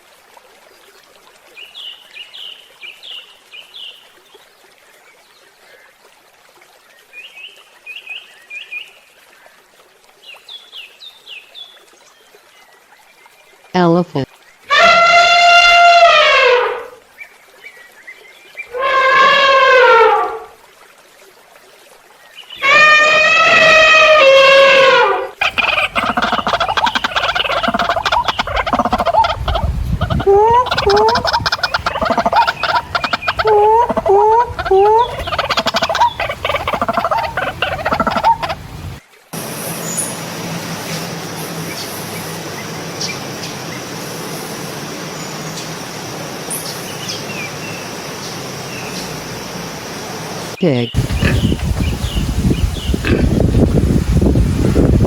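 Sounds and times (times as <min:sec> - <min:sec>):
elephant trumpeting: 0:25.4 - 0:39.0
faint bird chirps: 0:25.4 - 0:39.0
fowl chattering calls: 0:25.4 - 0:39.0, 0:51.0 - 0:52.1.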